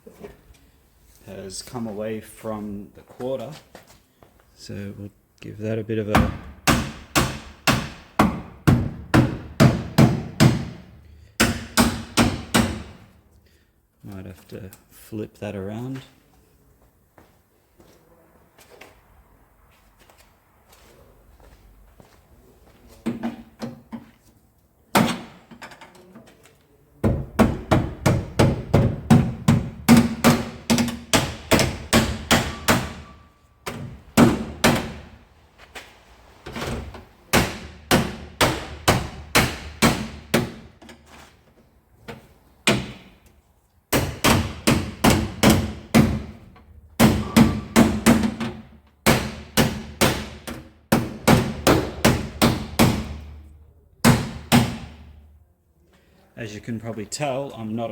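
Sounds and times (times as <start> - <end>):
hammer striking steel panel: 27.0 - 35.1, 47.0 - 53.4.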